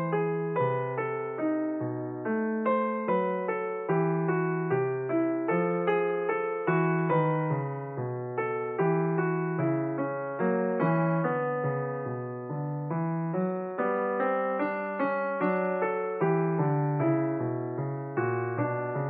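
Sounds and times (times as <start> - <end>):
slow solo piano melody: 0.0 - 19.0.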